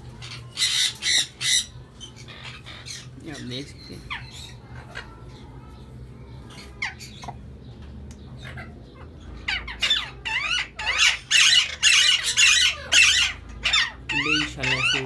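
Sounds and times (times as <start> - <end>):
birds screeching: 0.0 - 15.0.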